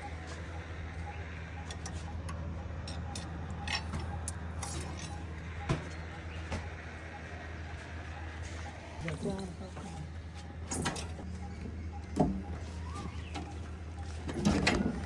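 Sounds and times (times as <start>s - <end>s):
diesel engine running: 0.0s - 15.0s
sharp metallic clinks and knocks: 1.6s - 6.7s, 10.6s - 11.6s.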